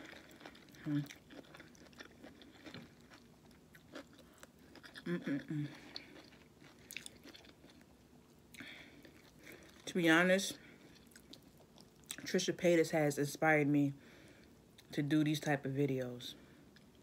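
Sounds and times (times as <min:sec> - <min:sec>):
person chewing food: 0:00.0 - 0:09.9, 0:10.7 - 0:12.3
person humming: 0:05.0 - 0:05.8.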